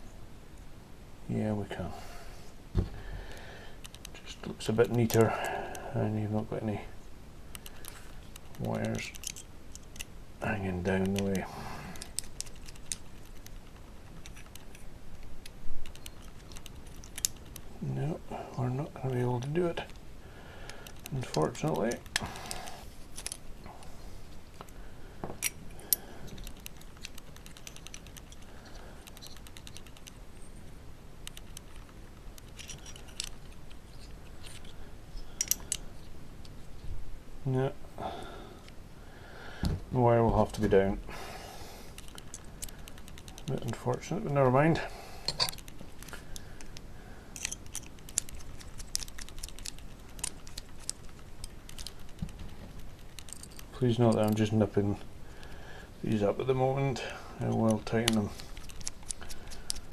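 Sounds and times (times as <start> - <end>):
small metal parts clicking: 3.8 - 5.5, 7.5 - 10.1, 10.8 - 17.7, 20.7 - 23.5, 25.4 - 30.4, 31.2 - 36.6, 41.9 - 43.8, 45.2 - 54.7, 57.4 - 59.9.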